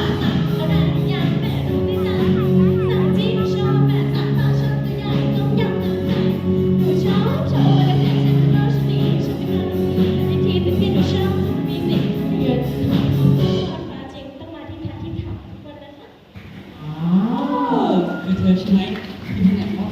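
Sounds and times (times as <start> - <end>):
backing track of held chords: 0.0 - 13.8
girl singing: 0.0 - 15.1.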